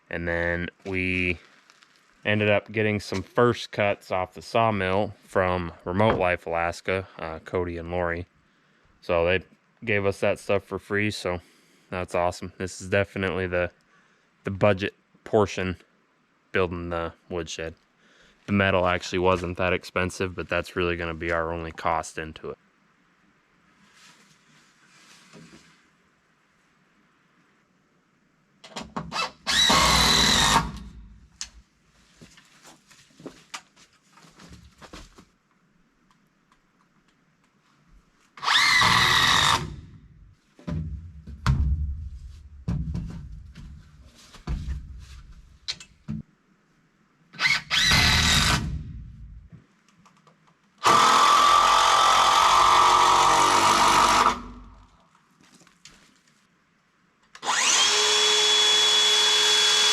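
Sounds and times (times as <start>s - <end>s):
power drill driving screws: 29.1s - 31.0s, 38.4s - 39.9s, 47.4s - 48.8s, 50.8s - 54.7s, 57.4s - 59.9s.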